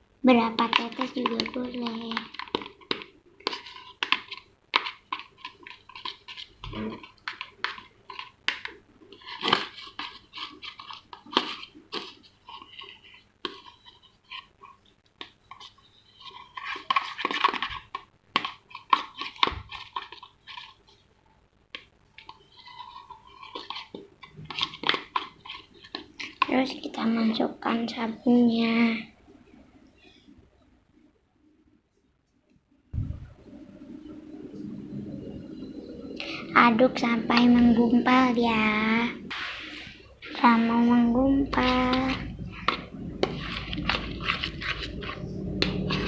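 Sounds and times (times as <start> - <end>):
utensil scraping a container: 22.2 - 26.9, 36.2 - 46.0.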